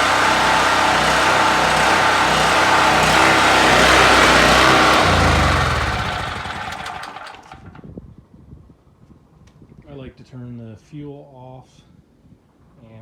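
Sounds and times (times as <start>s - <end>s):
generator engine running: 0.0s - 7.8s.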